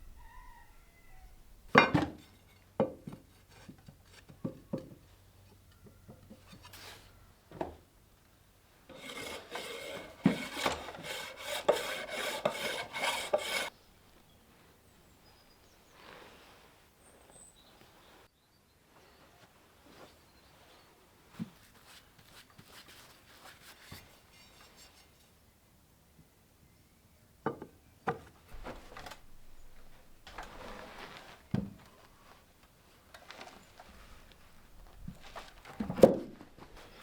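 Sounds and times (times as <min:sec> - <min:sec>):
hand filing rasping: 0:08.9 - 0:13.7.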